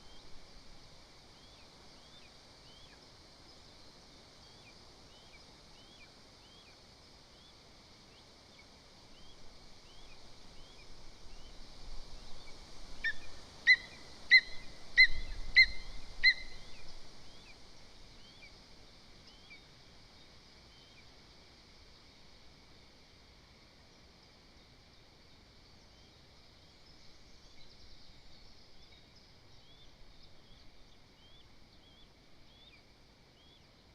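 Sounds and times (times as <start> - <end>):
eagle yelping calls: 13.7 - 16.6
songbird chirps: 23.9 - 33.9.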